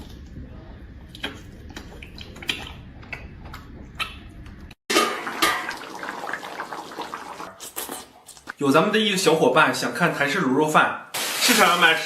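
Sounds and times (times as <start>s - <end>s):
running splashing water: 5.0s - 7.5s, 11.2s - 12.0s.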